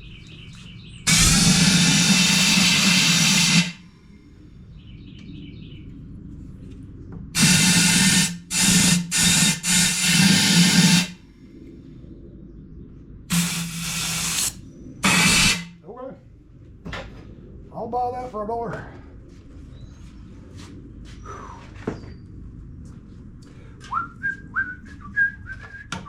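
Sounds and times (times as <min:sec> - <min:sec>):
compressed air hissing bursts: 0:01.1 - 0:03.9, 0:07.4 - 0:11.2, 0:13.3 - 0:15.8.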